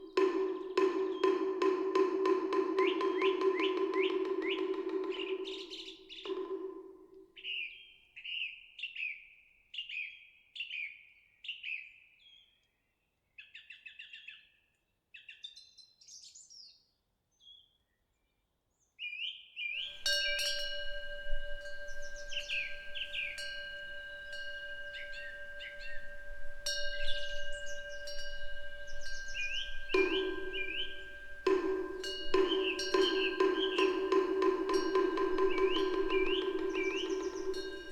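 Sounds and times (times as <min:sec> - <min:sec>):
wind bell ringing: 0:00.0 - 0:07.0, 0:19.8 - 0:37.9
small birds chirping: 0:19.8 - 0:37.9.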